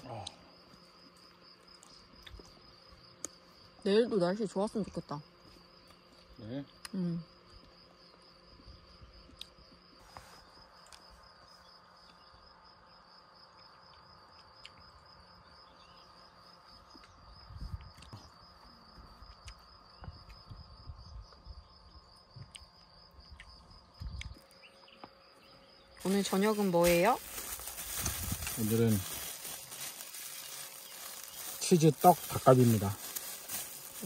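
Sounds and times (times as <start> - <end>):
insects trilling: 0.0 - 34.0.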